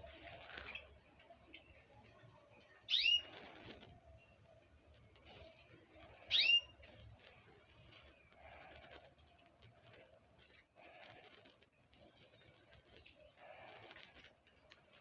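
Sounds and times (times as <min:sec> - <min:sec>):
small bird calling: 0:02.9 - 0:04.4, 0:05.2 - 0:07.0.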